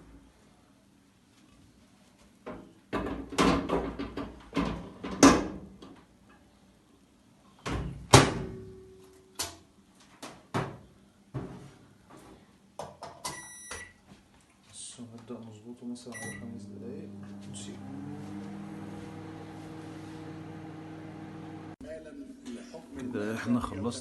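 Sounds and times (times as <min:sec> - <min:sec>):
keypad beep: 0:13.3 - 0:13.9, 0:16.2 - 0:16.4.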